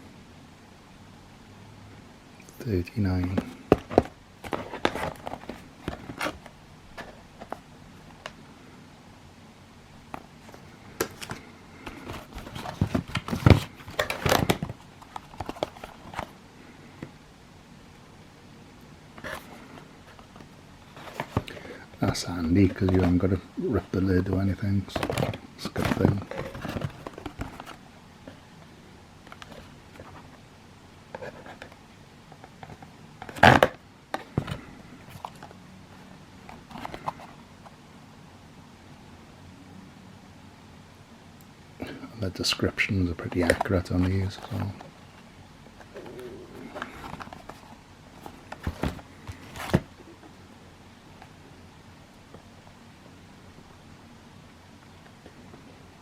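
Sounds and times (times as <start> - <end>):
cardboard box being handled: 3.2 - 7.6, 10.4 - 16.4, 19.2 - 23.2, 24.8 - 28.4, 45.8 - 50.0
rustling: 19.2 - 24.0, 24.8 - 28.5, 45.8 - 50.2.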